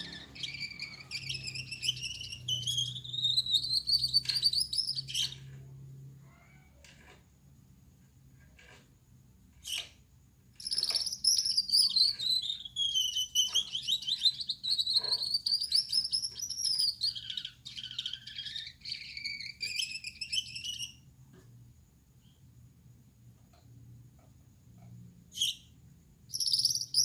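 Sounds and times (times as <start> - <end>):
finch singing buzzy song: 0.0 - 5.4, 10.6 - 21.0, 25.3 - 27.0.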